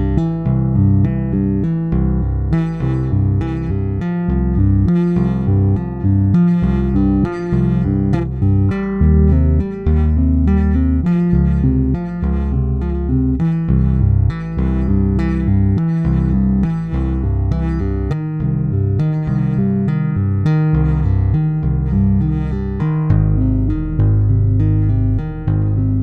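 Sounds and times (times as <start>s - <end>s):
low bass line: 0.0s - 26.0s
tapped electric bass notes: 0.0s - 26.0s.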